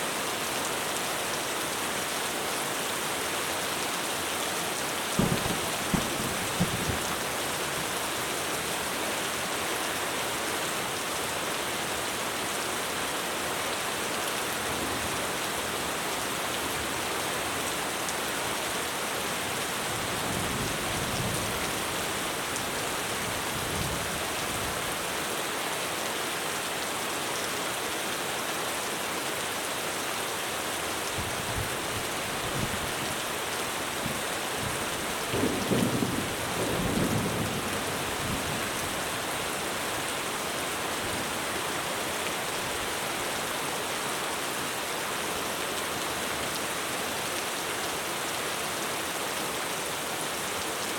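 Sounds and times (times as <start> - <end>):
heavy rain on a roof: 0.0 - 50.9
distant thunder rumbles: 5.2 - 7.3.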